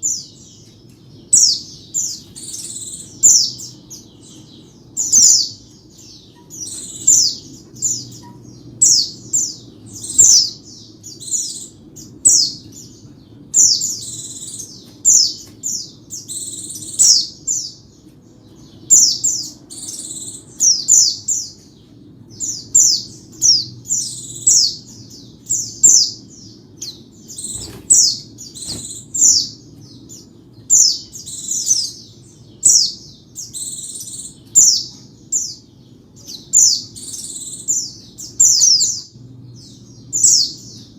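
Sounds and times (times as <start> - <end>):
bird singing chirpy phrases: 0.0 - 40.9
faint low hum: 0.0 - 40.9.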